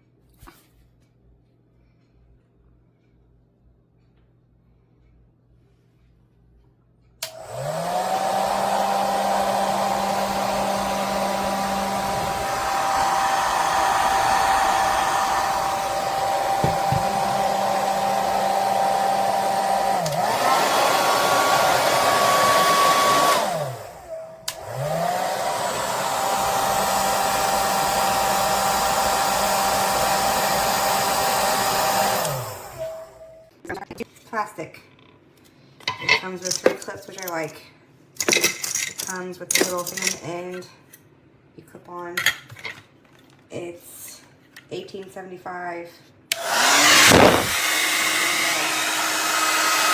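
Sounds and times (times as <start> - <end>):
hair dryer running: 7.2 - 33.4, 46.3 - 49.9.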